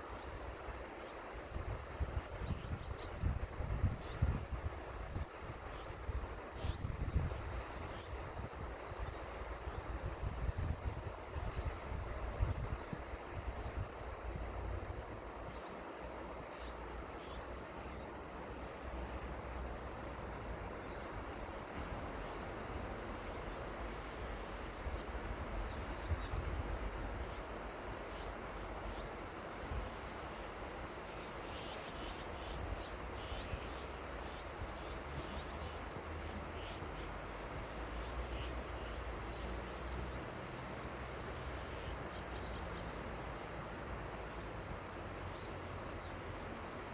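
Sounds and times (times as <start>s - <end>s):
wind rumble on microphone: 1.5s - 15.2s, 24.9s - 27.4s.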